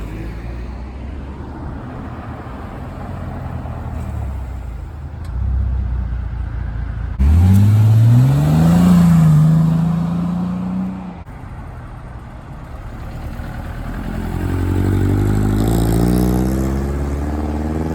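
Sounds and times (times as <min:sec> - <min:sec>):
car engines rumbling low: 0:00.0 - 0:17.9
car engine accelerating close by: 0:07.2 - 0:11.3, 0:13.0 - 0:17.9.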